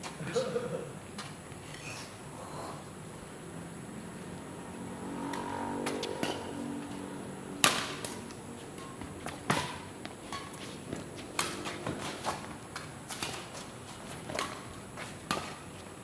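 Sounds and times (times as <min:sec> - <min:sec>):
rackets striking shuttlecock: 0:07.6 - 0:10.6, 0:11.4 - 0:11.7.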